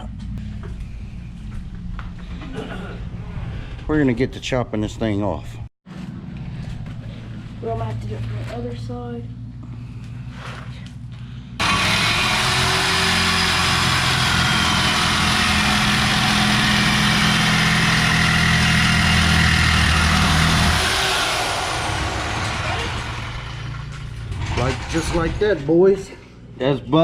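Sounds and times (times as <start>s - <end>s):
power cutting tool cutting metal pipe: 11.6s - 23.9s.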